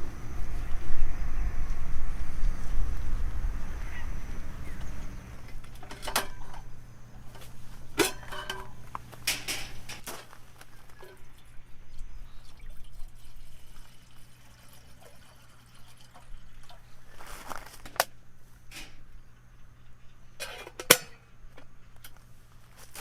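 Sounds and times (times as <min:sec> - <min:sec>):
liquid trickling and dripping: 0:10.6 - 0:17.5.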